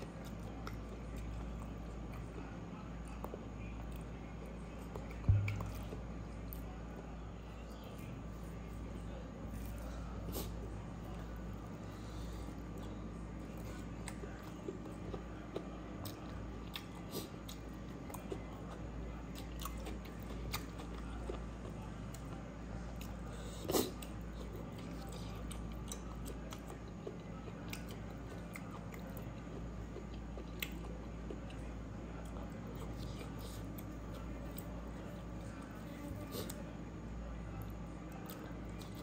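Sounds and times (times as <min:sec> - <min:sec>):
man chewing with wet smacks: 0:00.0 - 0:08.9, 0:09.5 - 0:36.7, 0:37.5 - 0:39.0
low hum: 0:05.0 - 0:06.5.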